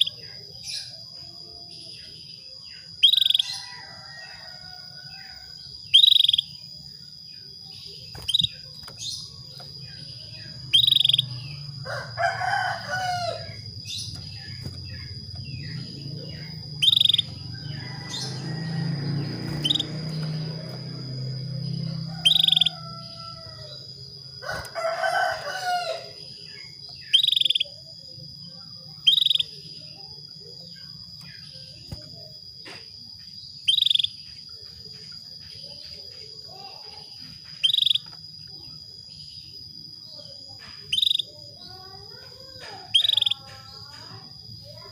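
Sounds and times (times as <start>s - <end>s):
canary chirp calls: 0.0s - 6.9s, 7.6s - 28.2s, 28.8s - 32.0s, 33.5s - 38.8s, 40.1s - 44.9s
rooster crowing: 3.4s - 5.6s, 11.7s - 13.7s, 14.9s - 26.4s.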